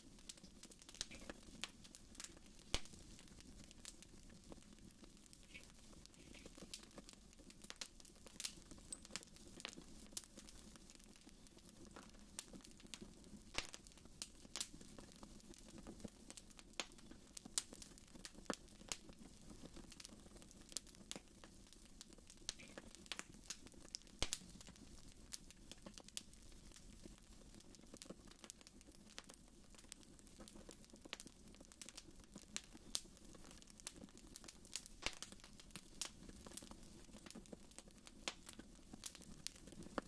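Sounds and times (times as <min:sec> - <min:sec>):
fireplace fire crackling: 0:00.0 - 0:40.0.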